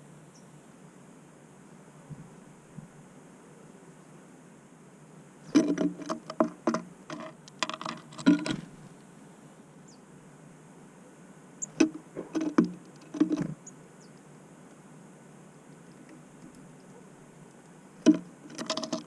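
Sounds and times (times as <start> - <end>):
birds pecking on feeder: 5.5 - 9.0, 11.6 - 13.7, 15.7 - 19.0.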